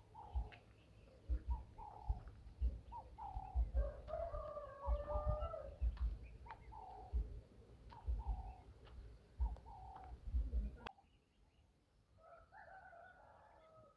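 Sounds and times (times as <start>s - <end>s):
long full bird call: 0.0s - 10.2s
dull low thumps: 0.0s - 10.9s
birds cooing: 0.0s - 11.2s.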